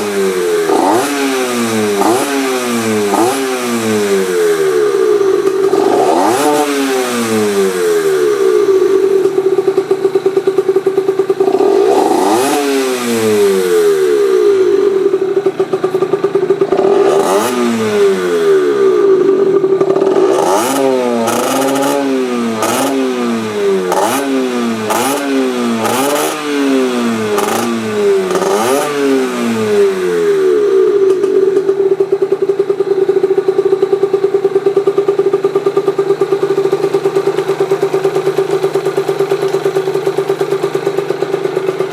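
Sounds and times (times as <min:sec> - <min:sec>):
two-stroke motorcycle engine revving: 0:00.0 - 0:41.9.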